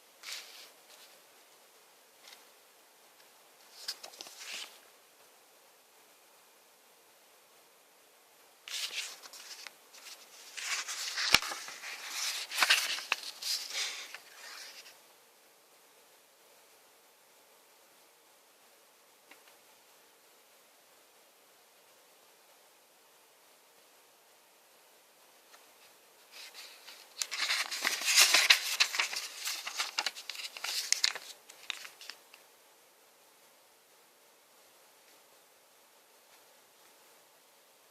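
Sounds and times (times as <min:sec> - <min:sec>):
packaging rustling: 0:08.7 - 0:14.9, 0:26.4 - 0:32.2.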